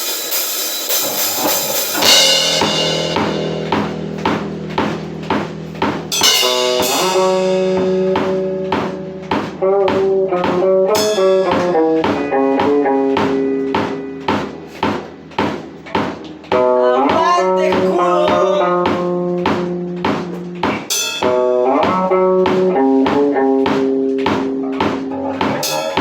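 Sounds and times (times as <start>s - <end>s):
cymbal crash: 0.0s - 9.6s
drum beat: 0.0s - 26.0s
electric guitar riff: 0.0s - 26.0s.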